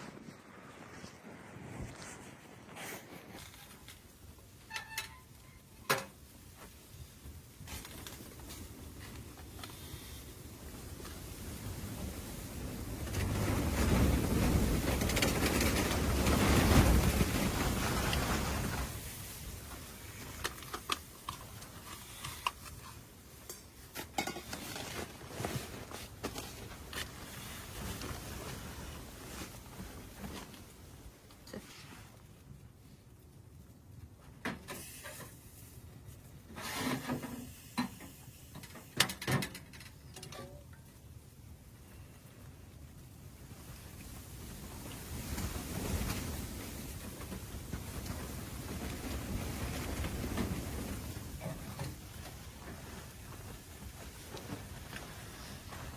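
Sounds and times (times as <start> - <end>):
gusting wind: 0.0 - 24.0, 41.1 - 55.9.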